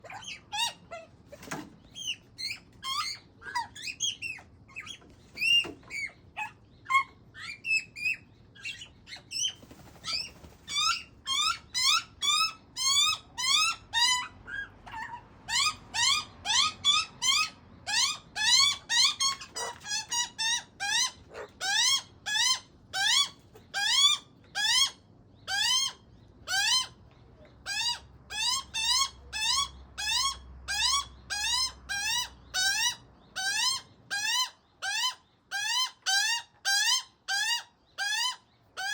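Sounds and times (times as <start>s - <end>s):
young magpie squeaky begging calls: 10.2s - 27.0s, 27.6s - 38.9s.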